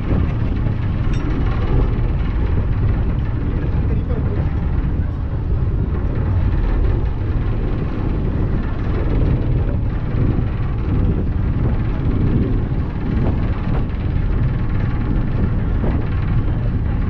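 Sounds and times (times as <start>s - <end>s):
ferry engines rumbling: 0.0s - 17.0s.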